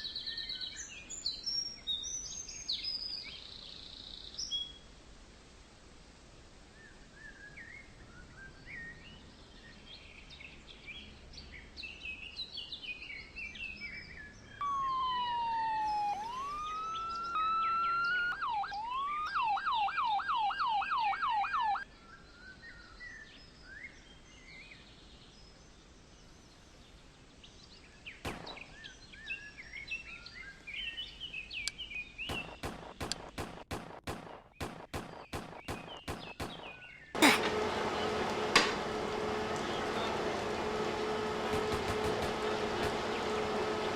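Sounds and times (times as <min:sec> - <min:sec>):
birds chirping: 0:14.6 - 0:21.8, 0:28.2 - 0:43.9
emergency siren wailing and yelping: 0:14.6 - 0:21.8
sharp clicks: 0:28.3 - 0:28.7, 0:31.6 - 0:43.9.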